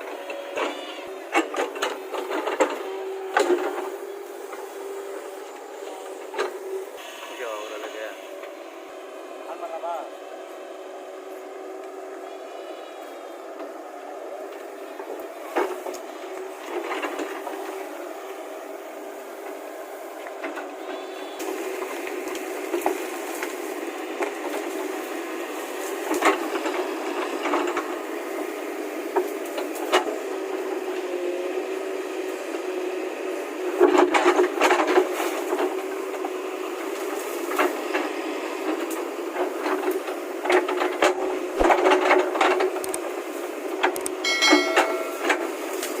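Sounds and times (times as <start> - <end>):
knocks clanks and rattles: 43.8 - 45.9
brief high-pitched tone: 44.2 - 45.5.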